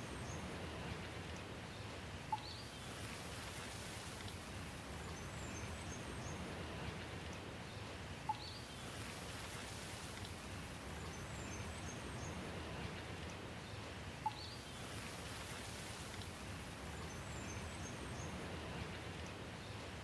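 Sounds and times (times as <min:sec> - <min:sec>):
steady rain hiss: 0:00.0 - 0:20.0
faint high bird chirps: 0:02.3 - 0:02.7, 0:08.3 - 0:08.9, 0:14.2 - 0:14.8.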